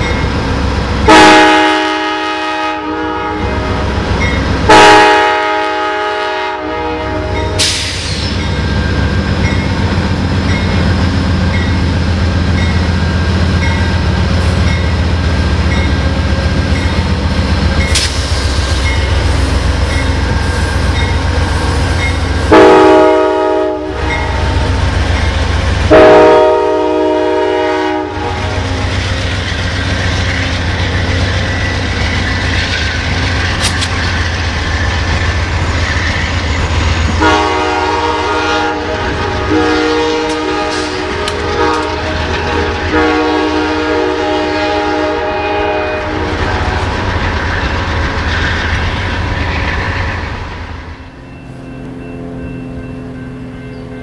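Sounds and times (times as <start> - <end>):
train rumbling over rails: 0.0 - 54.0
train horn blasts: 1.0 - 4.0, 4.6 - 7.7, 22.5 - 24.5, 25.9 - 28.8, 37.2 - 47.0.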